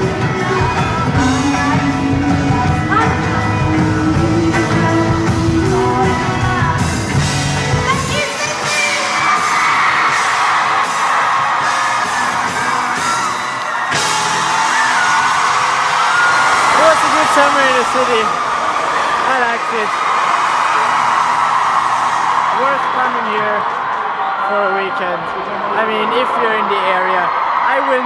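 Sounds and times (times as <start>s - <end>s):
live pop music with singing: 0.0s - 20.0s
audience cheering and screaming: 0.0s - 28.0s.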